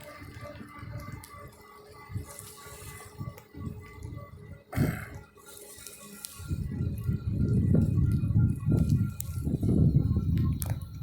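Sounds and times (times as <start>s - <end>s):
wind buffeting microphone: 0.0s - 5.4s, 6.0s - 11.0s.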